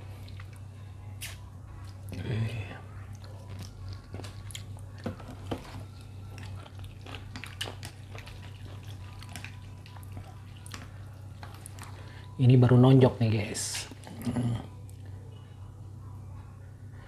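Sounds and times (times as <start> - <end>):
low steady hum: 0.0 - 17.0
wet chewing and mouth clicks: 1.2 - 2.2, 3.1 - 12.0.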